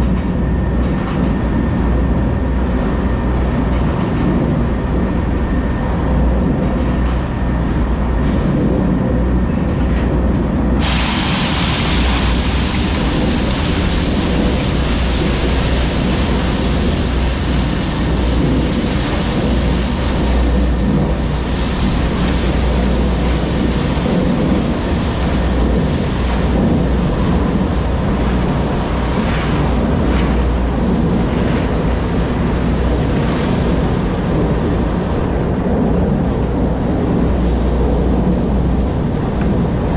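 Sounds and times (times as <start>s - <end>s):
wind noise on microphone: 0.0s - 39.9s
diesel engine rumbling: 10.7s - 39.9s.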